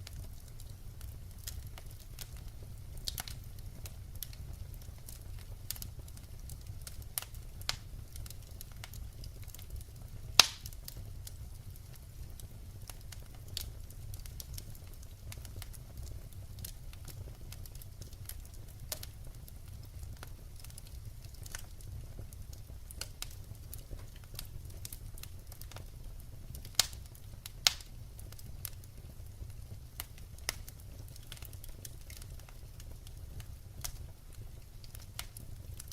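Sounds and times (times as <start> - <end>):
firewood crackling: 0.0 - 35.9.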